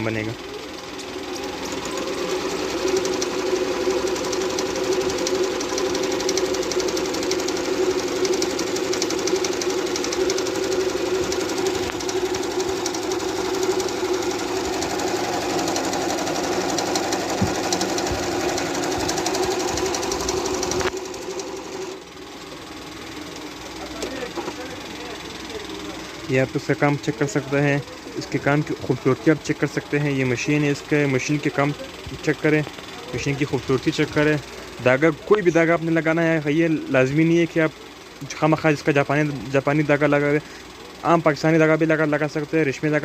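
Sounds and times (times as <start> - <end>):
sewing machine stitching: 0.0 - 43.0.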